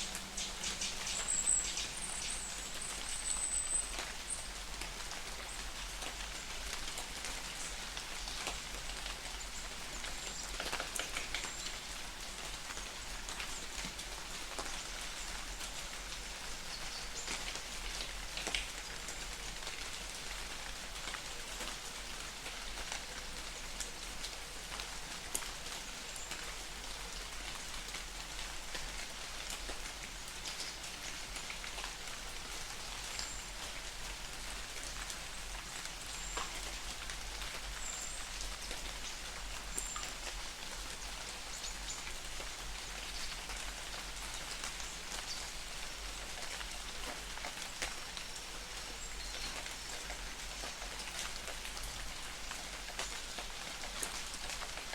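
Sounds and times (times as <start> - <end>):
sharp water drips: 0.0 - 4.4
light rain patter: 0.0 - 54.9.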